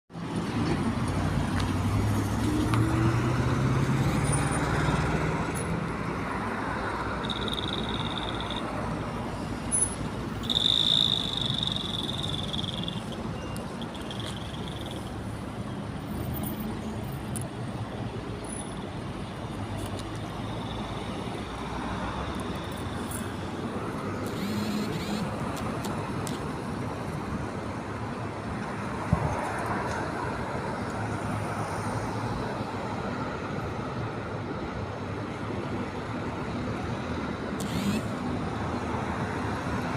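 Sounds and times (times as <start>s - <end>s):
hum of passing vehicles: 0.2s - 39.9s
short high whistle-like tones: 9.8s - 14.5s.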